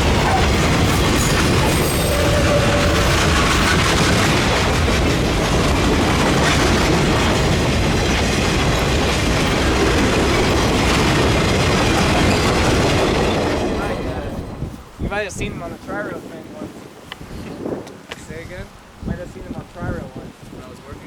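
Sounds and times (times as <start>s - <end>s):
train wheels clattering on rails: 0.0s - 14.7s.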